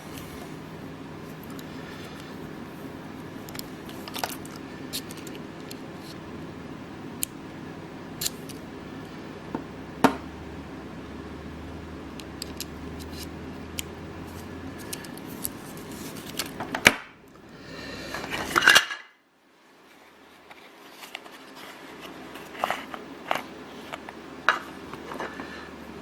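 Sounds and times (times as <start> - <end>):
rustling handling noise: 0.0 - 6.2, 14.3 - 16.9, 19.7 - 26.0.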